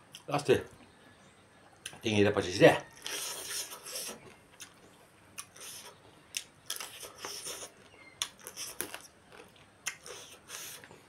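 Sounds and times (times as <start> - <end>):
person chewing and smacking: 3.0 - 11.0.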